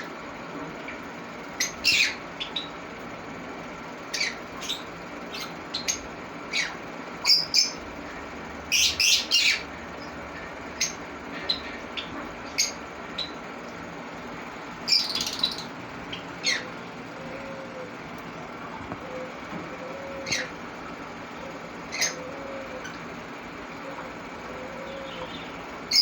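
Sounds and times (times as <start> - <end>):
parrots chirping and squawking: 1.6 - 2.7, 4.1 - 7.8, 8.7 - 9.7, 10.4 - 13.4, 14.8 - 17.8, 19.0 - 20.6, 21.3 - 23.1, 23.8 - 26.0.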